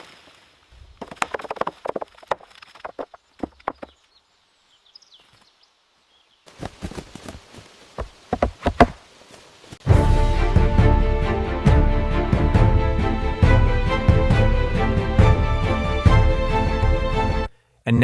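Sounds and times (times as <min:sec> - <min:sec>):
chopping strikes on wood: 0:01.0 - 0:04.0, 0:08.0 - 0:09.0
music: 0:09.9 - 0:17.5.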